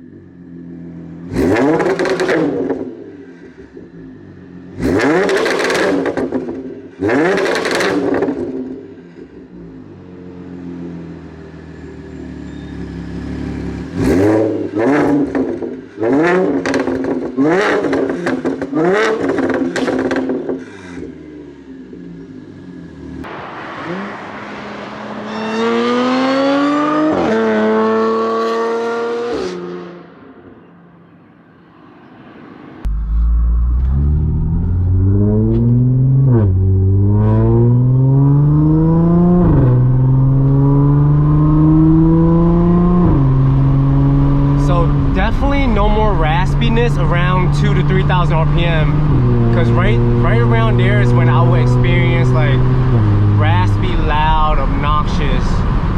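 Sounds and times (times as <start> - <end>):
car engine revving: 0.0 - 30.7, 31.6 - 55.9
loud low rumble: 23.2 - 27.0, 32.6 - 37.2, 44.6 - 52.7.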